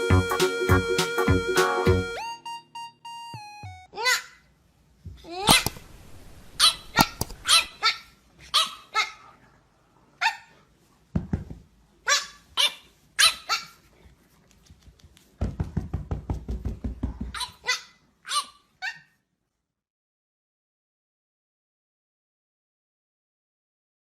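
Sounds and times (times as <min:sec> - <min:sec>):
dog barking: 0:06.6 - 0:09.2.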